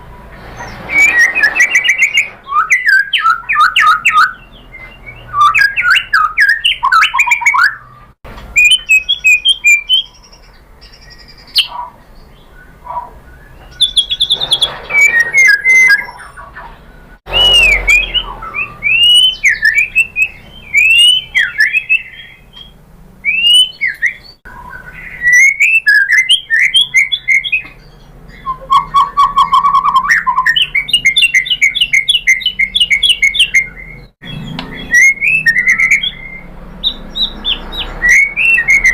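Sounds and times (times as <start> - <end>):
bird singing whistles and trills: 0.6 - 38.9.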